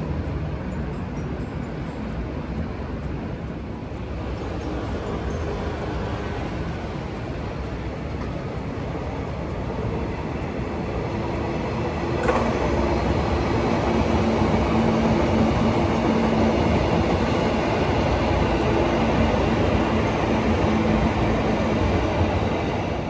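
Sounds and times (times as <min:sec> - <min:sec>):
train rumbling past: 0:00.0 - 0:23.0
sharp click: 0:12.1 - 0:13.3.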